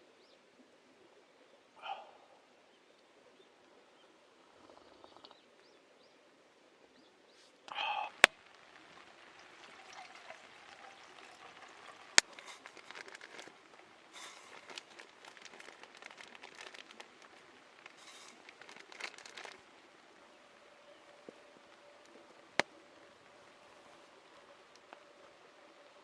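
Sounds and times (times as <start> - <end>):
campfire crackling: 7.5 - 26.0.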